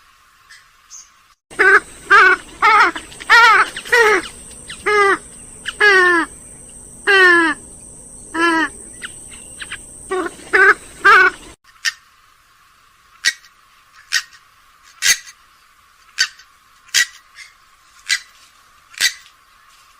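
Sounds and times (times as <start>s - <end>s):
swamphen loud nasal calls: 1.5s - 12.1s.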